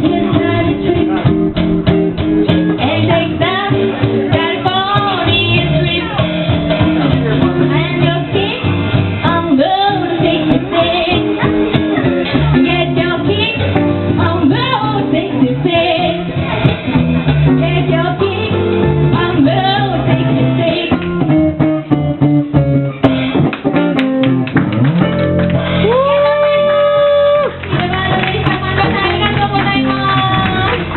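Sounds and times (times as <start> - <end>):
person singing: 0.0 - 1.8, 2.5 - 16.6
guitar accompaniment: 0.0 - 30.9.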